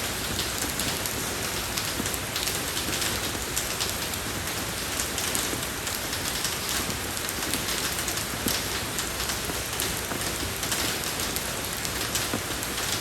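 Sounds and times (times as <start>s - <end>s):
soft rain on a road: 0.0s - 13.0s.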